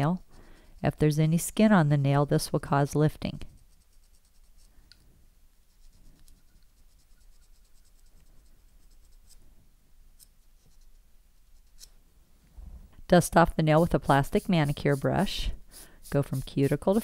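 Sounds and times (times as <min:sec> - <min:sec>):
cuticle pusher scraping fingernail: 0:10.2 - 0:12.0, 0:13.4 - 0:17.0.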